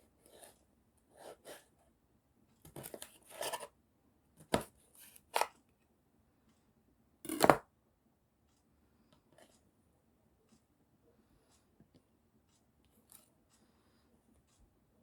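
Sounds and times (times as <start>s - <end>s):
knife slicing tomatoes on board: 7.3s - 7.6s.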